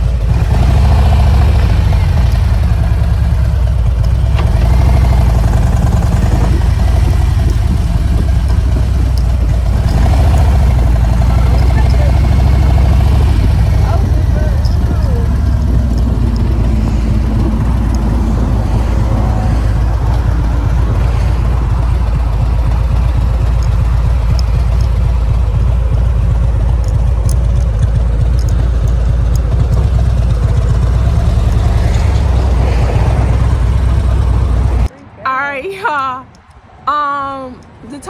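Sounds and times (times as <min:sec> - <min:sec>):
motorcycle engine rumble: 0:00.0 - 0:38.0
road noise: 0:00.0 - 0:38.0.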